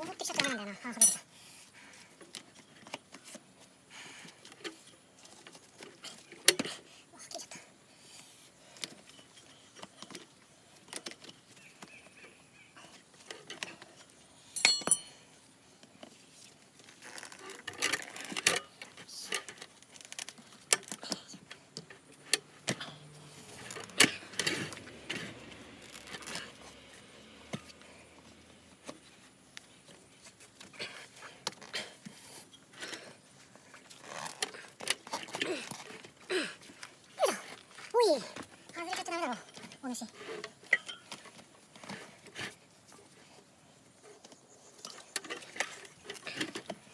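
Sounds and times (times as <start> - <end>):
metal tools clinking on wheel rim: 0.9 - 1.3, 14.5 - 15.4, 39.0 - 41.4
ringing metal clink: 1.0 - 1.2, 14.6 - 15.2.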